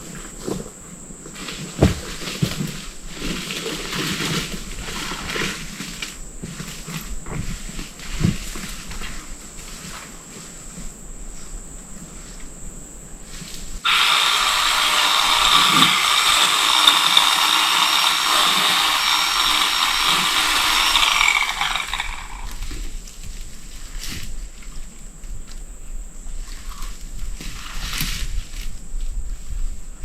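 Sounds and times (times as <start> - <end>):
chainsaw cutting brush: 13.8 - 22.9.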